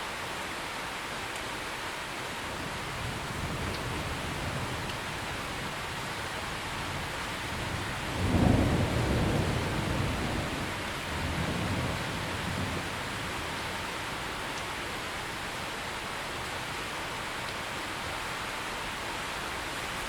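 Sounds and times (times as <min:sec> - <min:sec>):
heavy rain: 0:00.0 - 0:20.0
thunder rumbling: 0:02.8 - 0:14.4.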